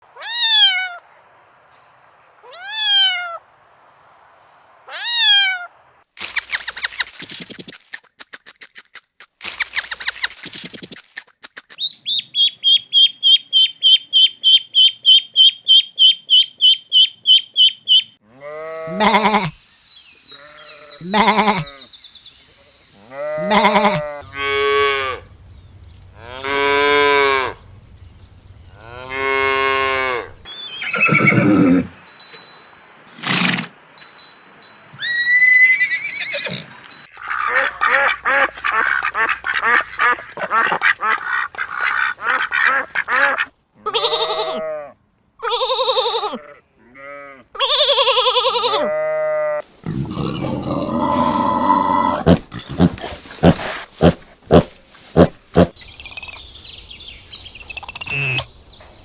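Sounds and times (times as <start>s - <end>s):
cat meowing: 0.2s - 1.0s, 2.5s - 3.4s, 4.9s - 5.7s
cow mooing: 48.8s - 54.7s.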